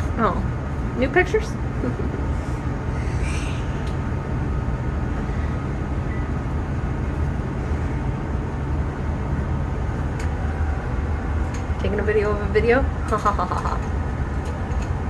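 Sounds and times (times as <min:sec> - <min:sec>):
steady low rumble with hum: 0:00.0 - 0:15.0.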